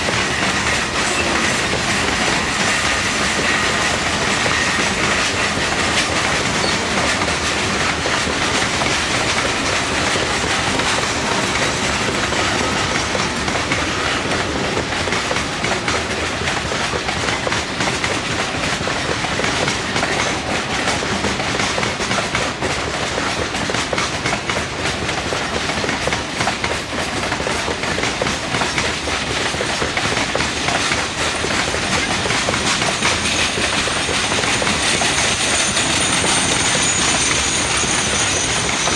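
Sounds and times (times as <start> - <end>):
wheels clicking over rail joints: 0.0 - 38.9
faint high wheel squeal: 0.2 - 7.3, 31.5 - 38.9.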